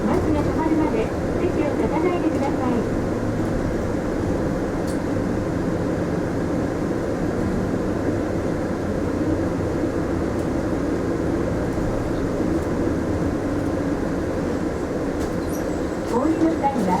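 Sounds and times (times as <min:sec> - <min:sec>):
bus engine and road noise: 0:00.0 - 0:17.0.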